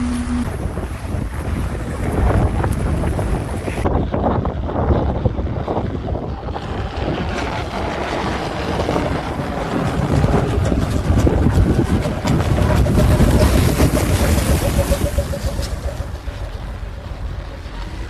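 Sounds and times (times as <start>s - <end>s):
faint steady tone: 0.0s - 0.5s
wind buffeting microphone: 0.0s - 18.0s.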